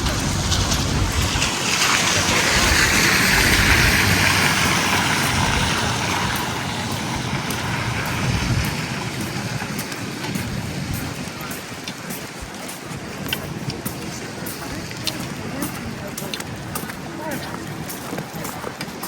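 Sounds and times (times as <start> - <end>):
low rumble of traffic: 0.0 - 11.6
tyres hissing on wet street: 0.0 - 19.0.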